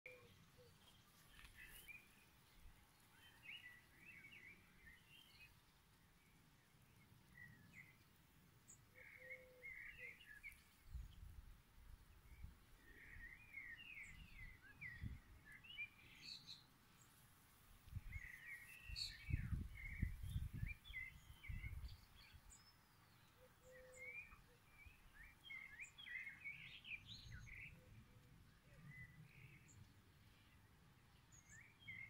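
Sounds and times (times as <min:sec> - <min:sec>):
songbird twittering: 0:08.8 - 0:11.2, 0:18.0 - 0:28.0.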